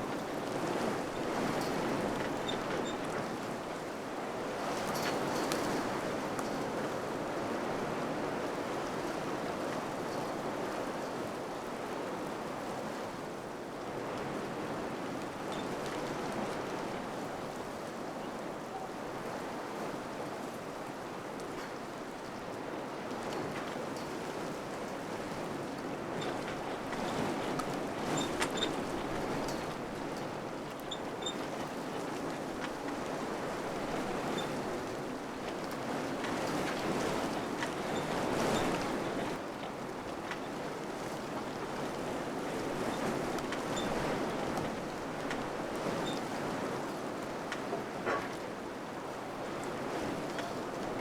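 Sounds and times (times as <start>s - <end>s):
wind blowing in gusts: 22.6s - 51.0s.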